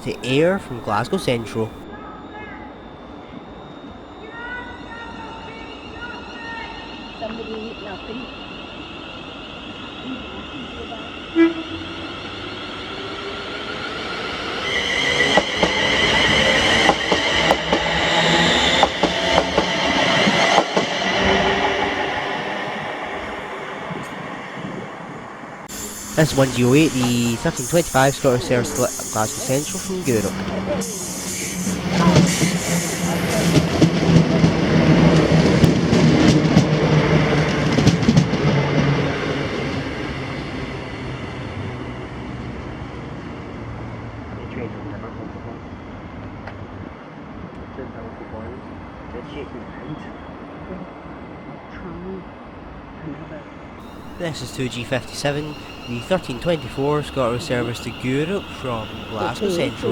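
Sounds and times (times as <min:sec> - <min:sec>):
train passing with low hum: 0:00.0 - 0:51.7, 0:53.8 - 0:59.9
high wheel squeal: 0:25.7 - 0:34.1, 0:53.8 - 0:59.9.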